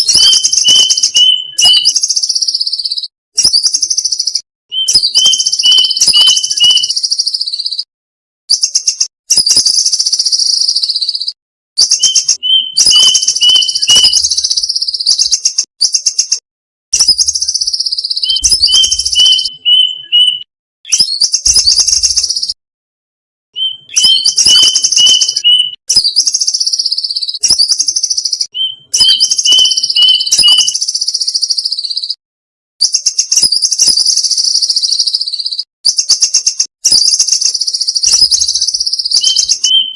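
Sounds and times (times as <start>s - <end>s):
cuckoo calls: 0.0s - 3.0s, 3.8s - 7.7s, 9.8s - 16.4s, 17.0s - 22.6s, 23.6s - 32.0s, 36.0s - 39.9s.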